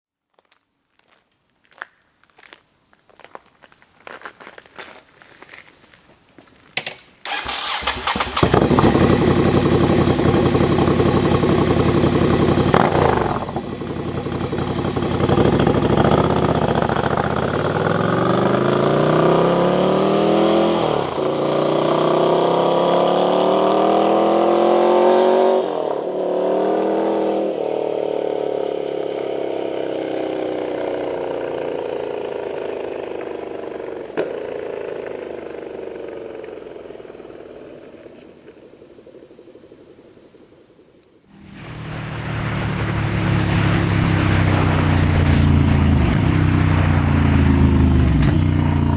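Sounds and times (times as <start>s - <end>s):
gear changes: 6.8s - 21.9s
motorcycle engine starting and revving: 6.8s - 48.9s.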